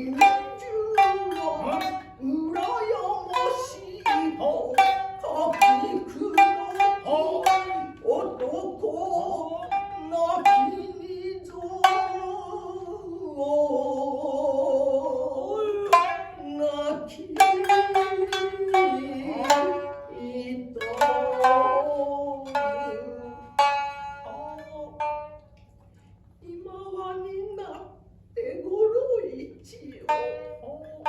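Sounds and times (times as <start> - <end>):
shamisen plucking sharp notes: 0.0 - 13.0, 15.7 - 25.6, 30.0 - 31.0
voice chanting in held notes: 0.0 - 15.5.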